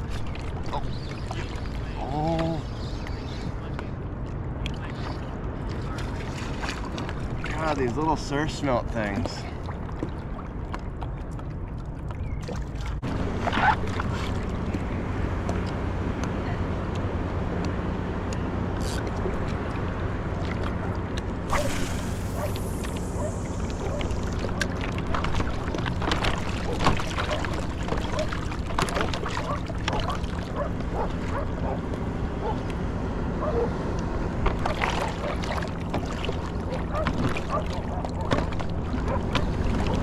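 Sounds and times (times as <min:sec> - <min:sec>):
water lapping and splashing: 0:00.0 - 0:40.0.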